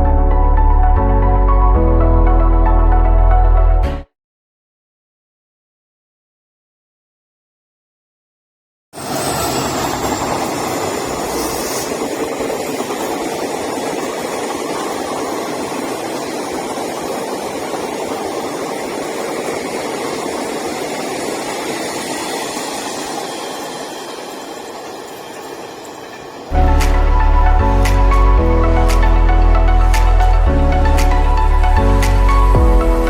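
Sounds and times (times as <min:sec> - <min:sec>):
train passing at speed: 0:09.0 - 0:33.0.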